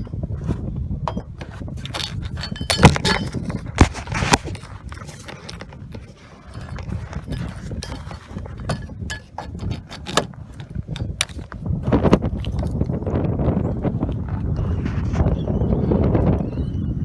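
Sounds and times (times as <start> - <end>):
hand crank turning: 0.0 - 12.8
metallic clicks and clunks: 1.0 - 12.6.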